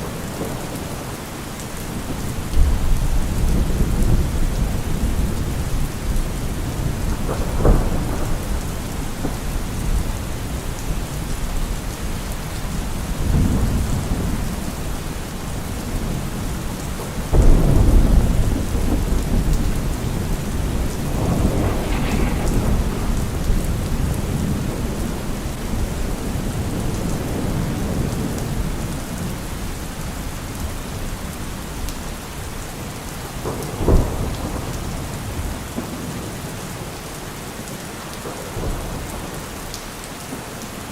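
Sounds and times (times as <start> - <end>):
steady rain on leaves: 0.0 - 40.9
thunder rumbling: 15.4 - 29.0.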